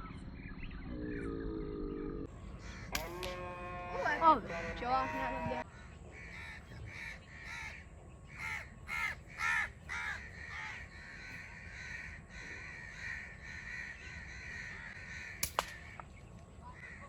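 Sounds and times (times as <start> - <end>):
crows cawing: 2.3 - 17.0
sharp snap: 2.9 - 3.4, 15.4 - 16.1.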